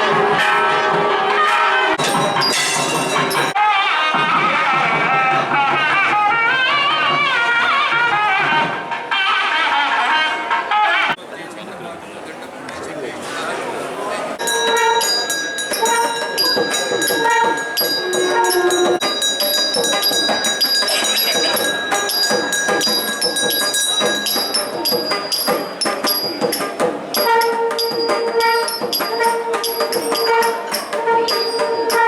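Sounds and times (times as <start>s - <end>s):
ceremonial music: 0.2s - 9.7s, 14.4s - 32.0s
bells ringing rapidly: 2.0s - 3.6s, 14.4s - 32.0s
held pipe-like notes: 2.0s - 3.6s, 14.4s - 32.0s.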